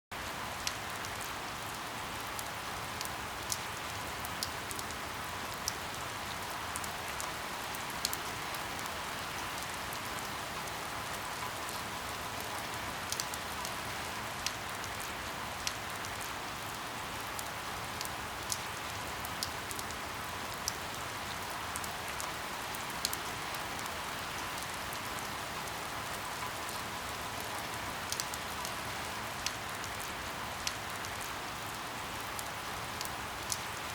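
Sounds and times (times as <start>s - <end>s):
rain pattering on a window: 0.1s - 33.9s.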